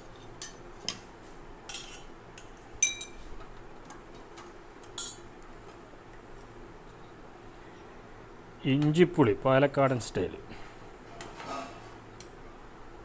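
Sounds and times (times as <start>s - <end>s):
cutlery and dishes clinking: 1.7s - 2.1s, 2.8s - 3.2s, 4.9s - 5.2s.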